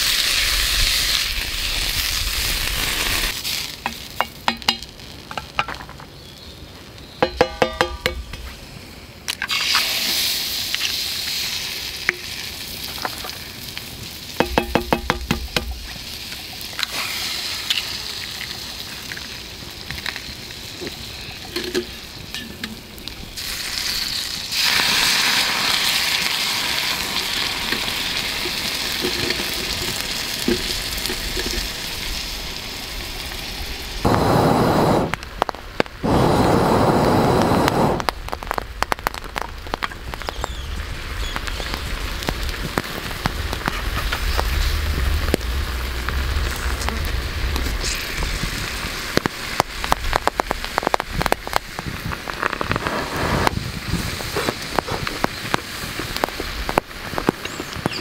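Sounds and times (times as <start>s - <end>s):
food sizzling in a frying pan: 0.0s - 5.6s, 9.4s - 34.2s, 37.0s - 58.0s
loud rushing bursts: 34.1s - 35.2s, 36.0s - 38.1s.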